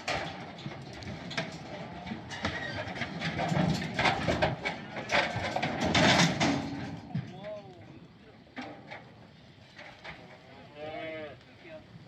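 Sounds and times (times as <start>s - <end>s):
cattle hooves on metal trailer floor: 0.0s - 7.5s.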